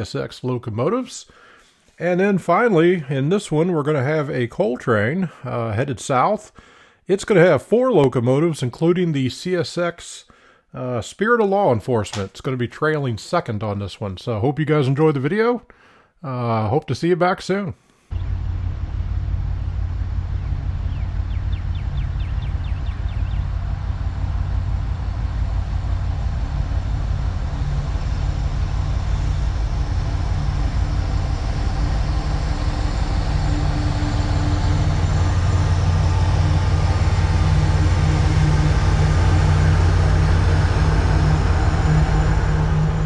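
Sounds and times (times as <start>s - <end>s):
diesel locomotive engine rumble: 18.1s - 43.0s.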